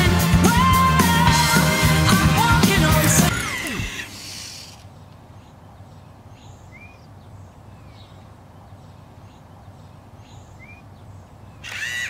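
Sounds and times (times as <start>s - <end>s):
faint bird chirps: 4.8s - 11.8s.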